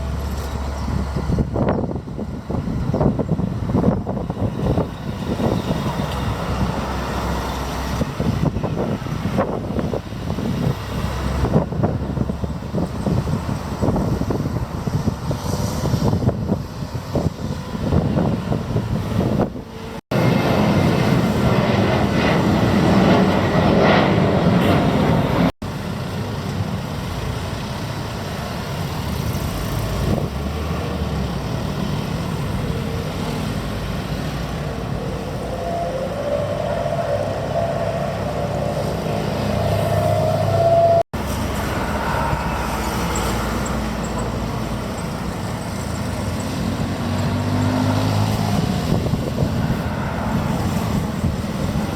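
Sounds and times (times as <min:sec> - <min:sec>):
jet engines rumbling: 0:00.0 - 0:51.9
rising tone: 0:34.6 - 0:44.3.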